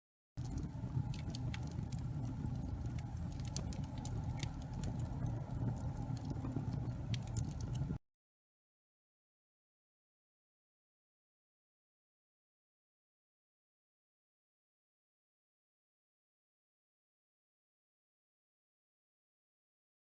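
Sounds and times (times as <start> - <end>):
fire crackling and popping: 0.4 - 8.0
fire rumbling: 0.4 - 8.0.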